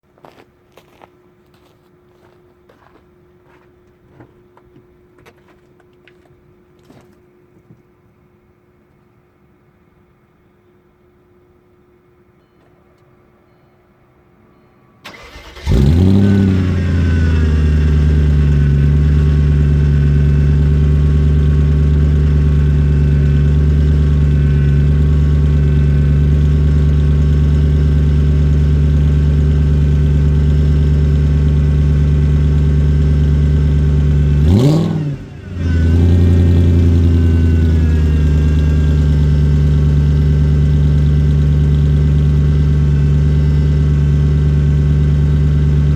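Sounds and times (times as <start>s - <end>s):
car engine cranking: 15.0s - 45.9s
car engine idling: 15.1s - 45.9s
car engine revving: 15.1s - 45.9s.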